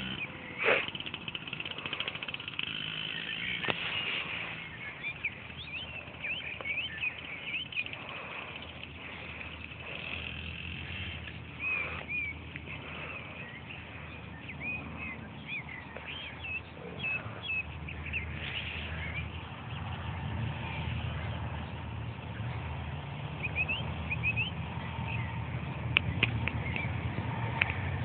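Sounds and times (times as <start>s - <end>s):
birds chirping: 0.0s - 28.0s
dirt bike engine running: 0.0s - 28.0s
sharp clicks: 25.9s - 26.9s.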